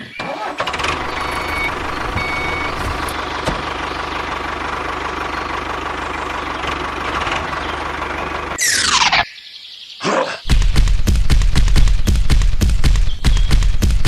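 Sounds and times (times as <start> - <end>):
engine idling: 0.1 - 8.6.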